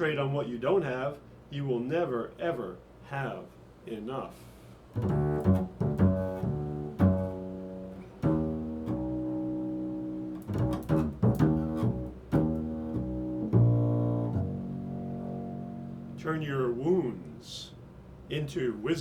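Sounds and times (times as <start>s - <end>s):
plucked string instrumental music: 5.0s - 16.6s.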